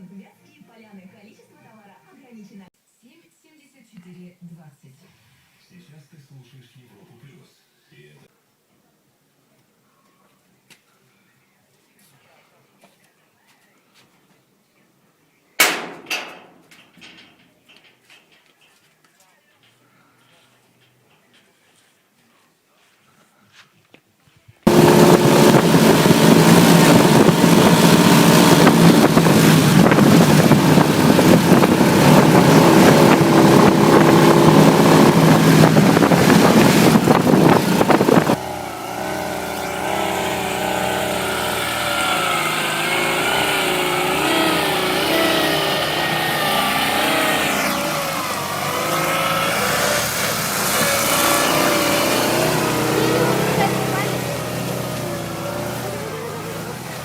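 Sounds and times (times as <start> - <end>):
motorcycle engine running loud: 24.7 - 57.0.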